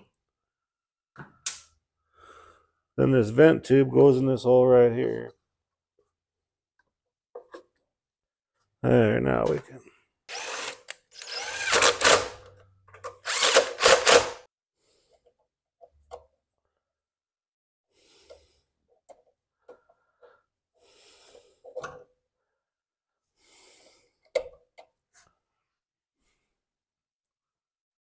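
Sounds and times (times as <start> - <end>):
power drill motor speeding up: 10.3 - 12.4, 13.2 - 14.4.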